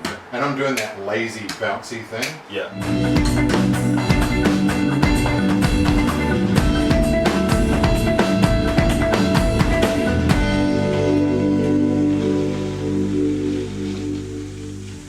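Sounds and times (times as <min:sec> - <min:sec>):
bass: 0:02.7 - 0:15.0
guitar: 0:02.7 - 0:15.0
held chord ringing: 0:02.7 - 0:15.0
drum kit playing a steady beat: 0:02.8 - 0:14.5.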